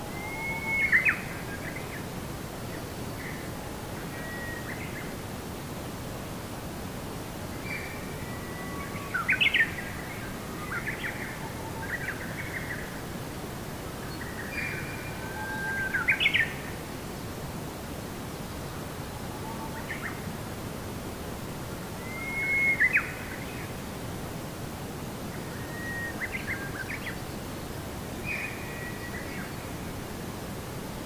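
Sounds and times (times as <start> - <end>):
songbird singing: 0.0 - 2.1, 2.7 - 5.2, 7.5 - 13.1, 13.9 - 16.8, 22.0 - 23.8, 25.3 - 30.1
background hiss: 0.0 - 31.0.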